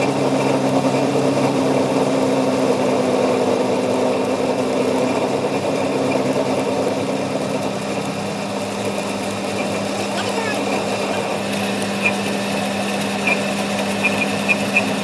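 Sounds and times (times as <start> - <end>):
machine humming: 7.8 - 15.0.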